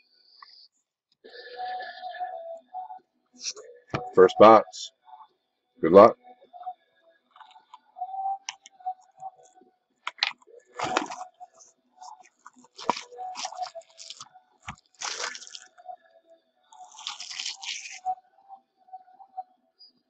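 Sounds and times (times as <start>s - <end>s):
packaging tearing and crinkling: 10.2s - 11.2s, 12.1s - 15.7s, 16.8s - 18.1s.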